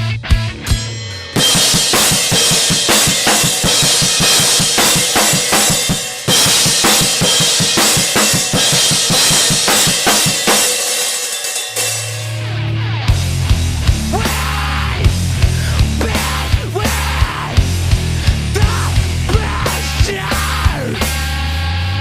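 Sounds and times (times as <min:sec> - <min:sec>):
heavy rock drumming: 0:00.0 - 0:22.0
sustained low bass note: 0:13.1 - 0:19.6.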